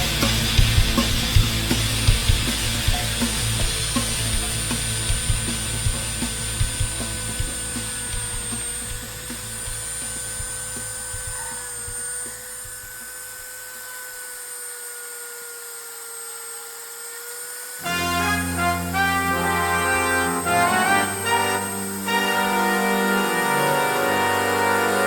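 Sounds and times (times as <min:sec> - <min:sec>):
rotary tool whining: 0:00.0 - 0:19.0.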